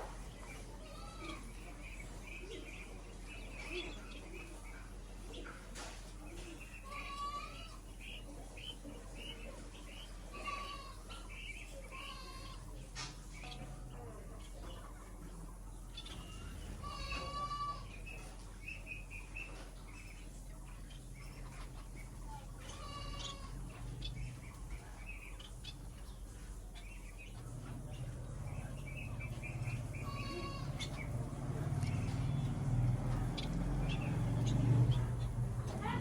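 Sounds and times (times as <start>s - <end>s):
small birds chirping: 0.0s - 36.0s
drawn-out bird call: 15.9s - 36.0s.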